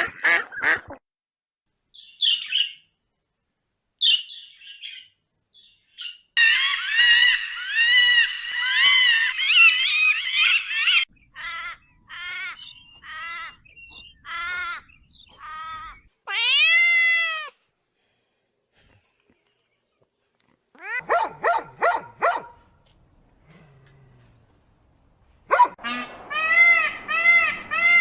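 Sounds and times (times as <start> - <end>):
high arching animal calls: 6.0 - 17.3.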